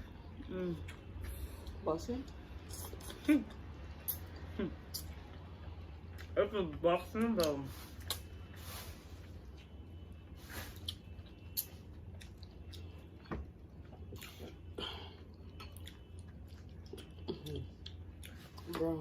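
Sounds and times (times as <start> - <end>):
steady low hum: 0.0 - 19.0
person chewing: 2.7 - 5.4, 7.4 - 8.7, 10.5 - 18.8.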